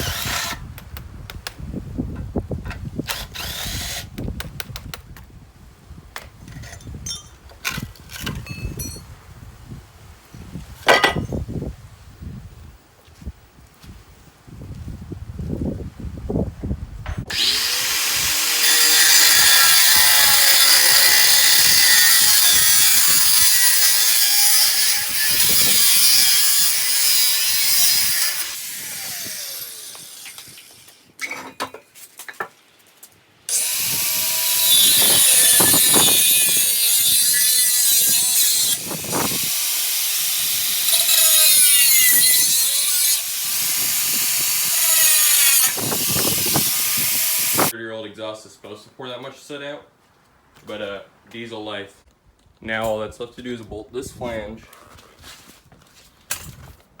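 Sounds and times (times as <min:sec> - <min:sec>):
power tool cutting steel pipe: 0:00.0 - 0:00.6, 0:03.1 - 0:04.1, 0:17.3 - 0:31.0, 0:33.5 - 0:47.7.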